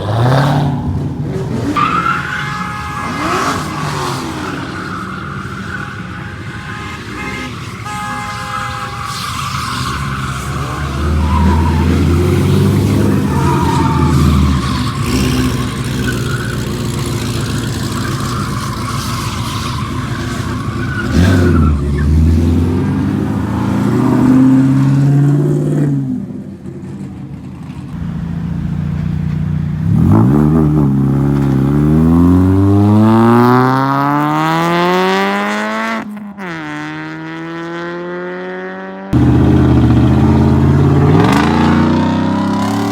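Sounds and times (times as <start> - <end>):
car engines revving loudly: 0.0 - 27.1, 27.8 - 42.9
car accelerating hard: 29.8 - 42.9.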